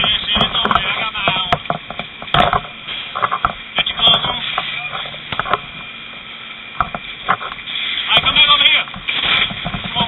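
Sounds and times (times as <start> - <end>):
voice over radio speaker: 0.0 - 1.6, 3.8 - 5.2, 8.0 - 9.0
radio clicks: 0.0 - 5.9, 6.8 - 10.0.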